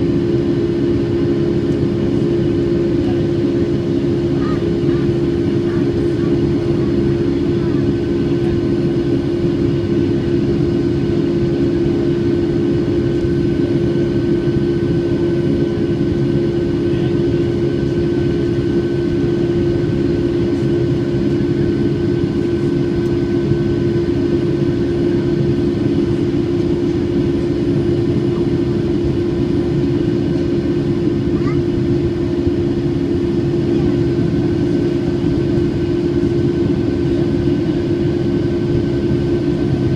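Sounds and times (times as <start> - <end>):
jet engines droning: 0.0 - 39.9.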